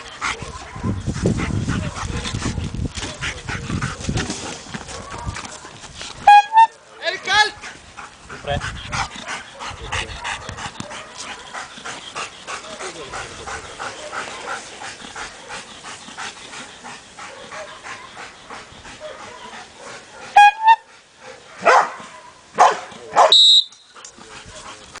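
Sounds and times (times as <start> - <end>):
dog barking rapidly: 21.5 - 23.4.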